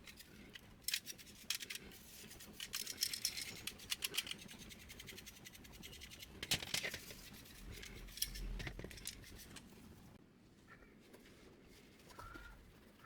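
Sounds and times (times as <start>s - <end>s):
plastic and metal parts clicking: 0.0s - 4.4s.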